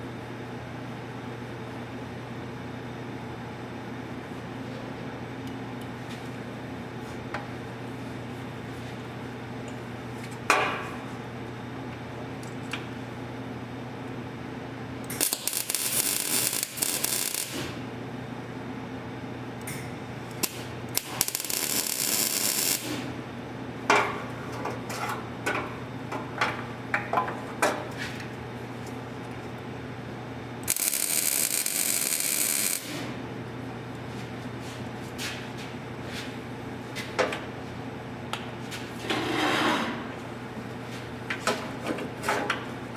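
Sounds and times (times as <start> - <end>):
steady electrical hum: 0.0 - 42.9
welding arc crackling: 15.1 - 17.8, 19.6 - 23.2, 30.6 - 33.2.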